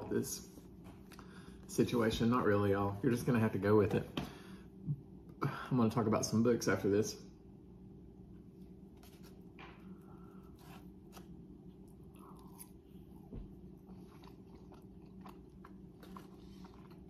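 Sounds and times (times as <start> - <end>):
steady low hum: 0.0 - 17.0
faint chewing and mouth sounds: 9.0 - 17.0.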